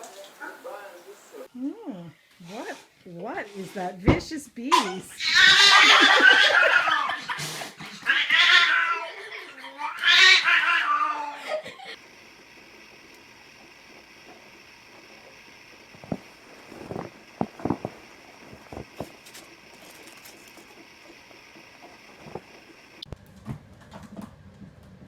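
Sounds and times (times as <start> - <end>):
faint steady hiss: 0.0 - 5.1
cat yowling: 5.2 - 7.1, 7.9 - 11.4.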